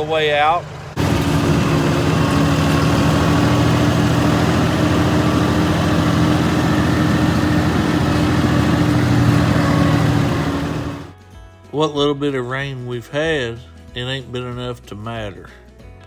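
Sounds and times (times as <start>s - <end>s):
engine running steadily: 0.0s - 11.2s.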